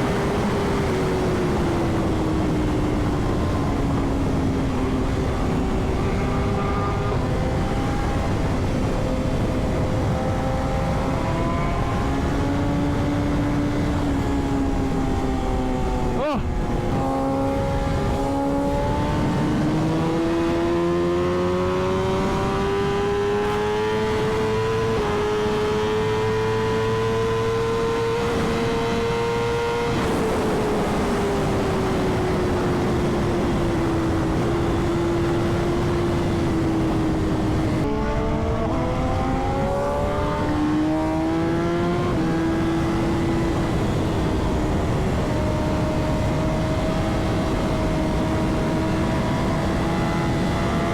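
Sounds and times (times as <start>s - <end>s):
motorcycle engine revving: 0.0s - 50.9s
wind rush: 27.9s - 50.9s.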